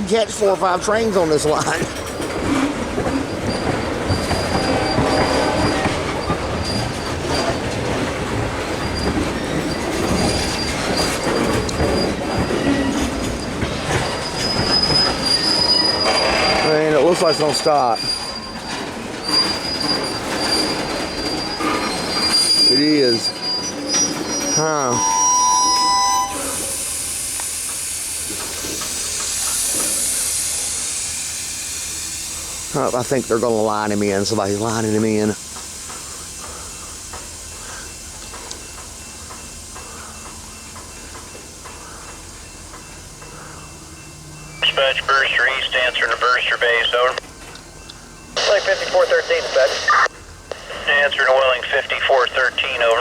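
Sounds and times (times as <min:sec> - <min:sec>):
high wheel squeal: 0:00.4 - 0:49.0
train wheels clacking over rail joints: 0:00.9 - 0:22.9
train air brakes hissing: 0:01.6 - 0:46.0.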